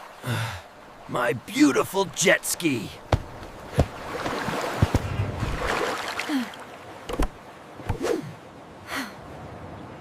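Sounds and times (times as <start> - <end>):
water sloshing and splashing: 2.9 - 8.6.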